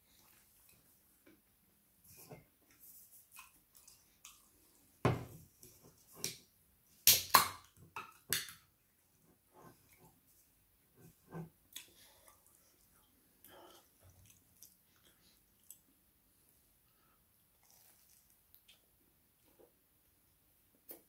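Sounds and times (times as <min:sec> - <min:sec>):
wet chewing: 0:13.5 - 0:15.9.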